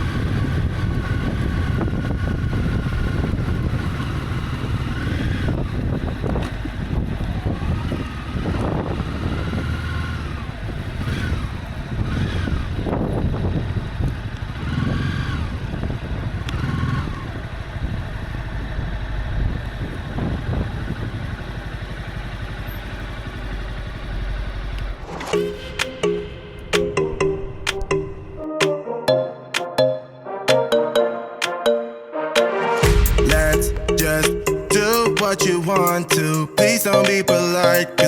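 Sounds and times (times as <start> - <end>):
motorcycle engine revving: 0.0 - 25.2
road and wind rumble: 0.0 - 28.4.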